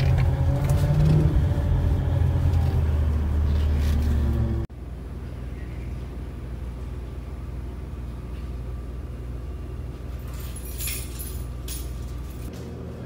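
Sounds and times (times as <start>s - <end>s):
car engine humming: 0.0s - 4.7s.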